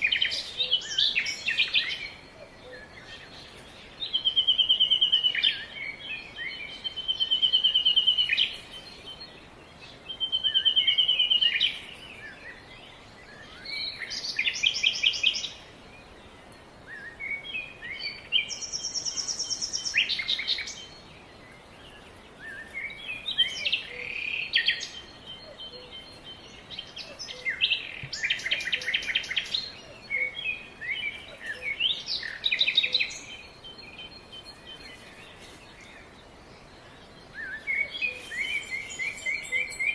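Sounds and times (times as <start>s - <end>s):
faint steady hiss: 0.0s - 39.9s
songbirds trilling and chirping: 0.0s - 39.9s.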